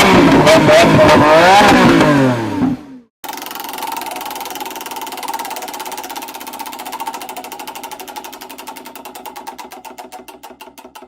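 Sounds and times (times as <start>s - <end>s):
car engine pulsing: 3.2s - 11.0s.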